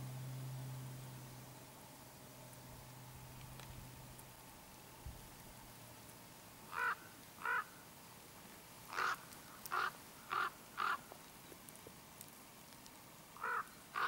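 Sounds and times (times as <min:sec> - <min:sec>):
bird harsh calls: 0:06.7 - 0:07.8, 0:08.9 - 0:11.1, 0:13.4 - 0:14.0.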